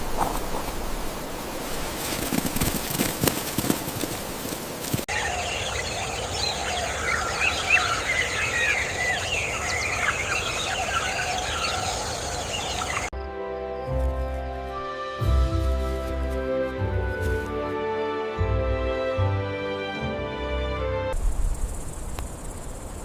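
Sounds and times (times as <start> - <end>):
rough rustling noise: 0.0 - 5.1, 14.0 - 17.8
birds chirping and calling: 5.1 - 13.2
music: 13.1 - 21.2.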